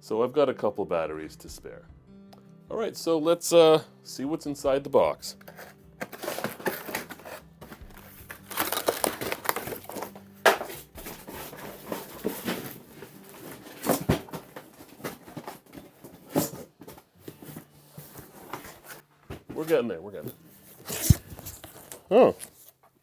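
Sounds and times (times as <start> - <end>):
cardboard rustling and crinkling: 5.3 - 23.0.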